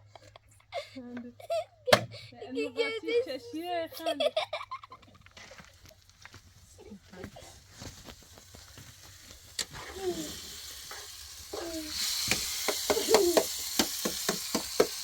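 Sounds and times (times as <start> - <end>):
food sizzling in hot oil: 7.9 - 15.0
utensil knocking and scraping pan: 12.2 - 15.0.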